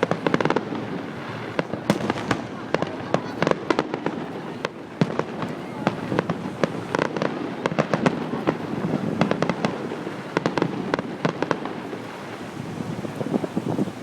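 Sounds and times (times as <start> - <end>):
distant explosions rumbling: 0.0 - 14.0
fireworks bangs and crackles: 0.0 - 14.0.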